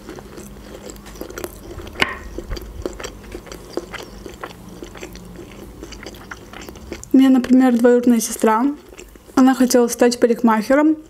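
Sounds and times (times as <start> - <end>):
wet chewing mouth smacks: 0.1 - 7.1.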